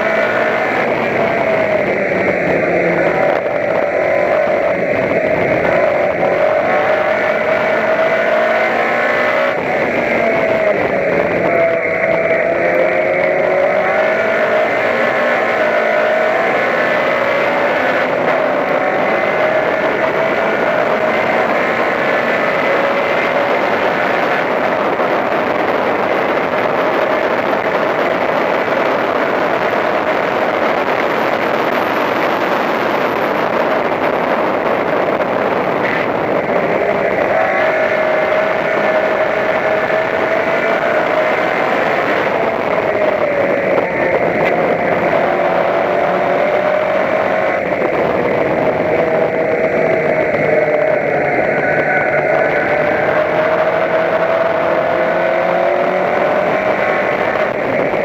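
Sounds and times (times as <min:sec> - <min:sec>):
race car engine running hard: 0:00.0 - 0:58.0
wind and road noise: 0:00.0 - 0:58.0.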